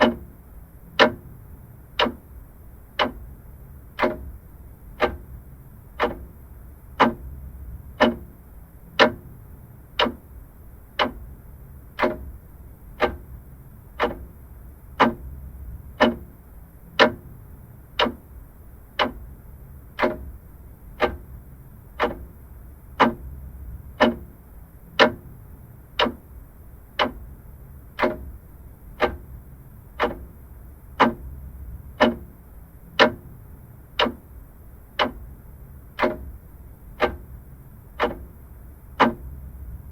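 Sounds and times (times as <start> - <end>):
clock ticking: 0.0 - 39.9
faint low hum: 0.0 - 39.9.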